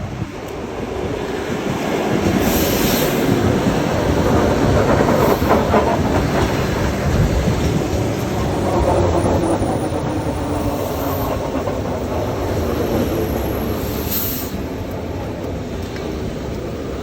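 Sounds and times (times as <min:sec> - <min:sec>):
electric train running past: 0:00.0 - 0:17.0
wheels clacking over rail joints: 0:03.2 - 0:14.1.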